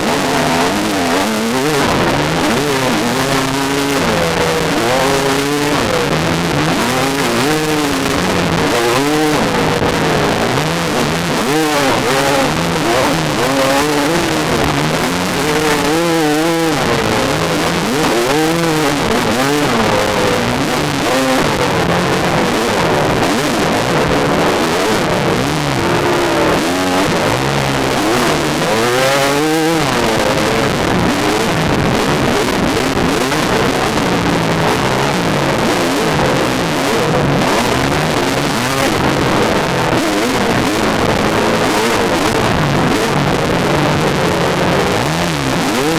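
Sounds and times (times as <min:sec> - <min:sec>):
dirt bike engine revving: 0:00.0 - 0:45.9
steady rushing noise: 0:00.0 - 0:45.9.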